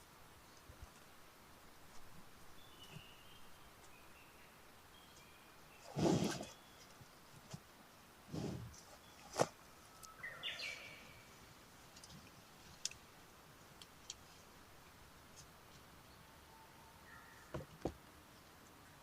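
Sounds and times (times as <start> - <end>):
faint bird chirps: 2.5 - 7.0, 8.7 - 11.4, 16.0 - 17.6.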